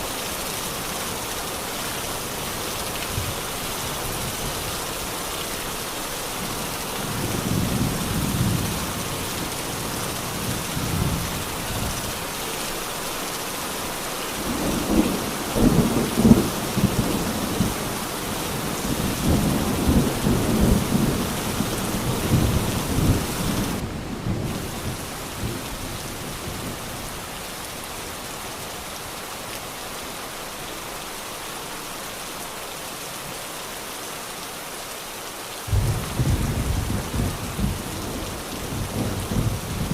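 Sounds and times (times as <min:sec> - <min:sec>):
heavy rain: 0:00.0 - 0:39.9
rolling thunder: 0:35.7 - 0:39.9.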